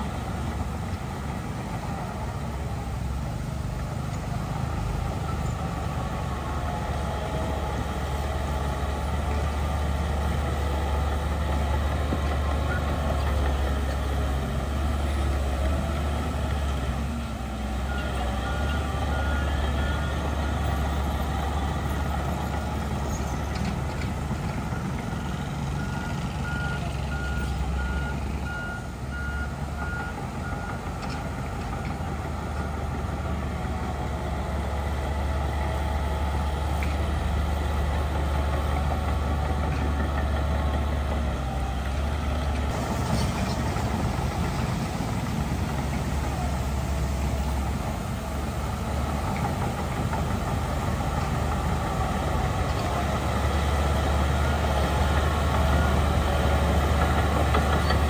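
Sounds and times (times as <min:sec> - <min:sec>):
heavy diesel machinery running: 0:00.0 - 0:58.0
reversing alarm beeping: 0:25.8 - 0:30.8.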